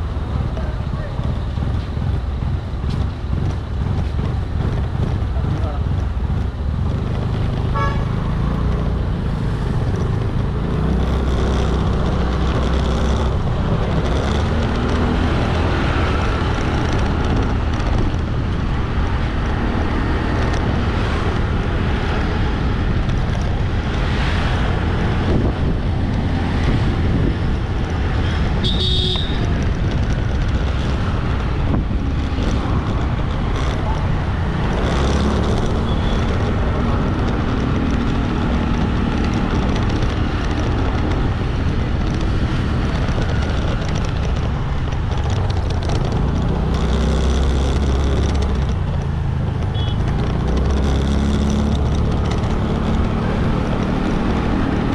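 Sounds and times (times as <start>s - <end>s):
motorbike engine and wind rumble: 0.0s - 54.9s
passing vehicles: 0.0s - 54.9s
short horn toot: 28.6s - 29.4s.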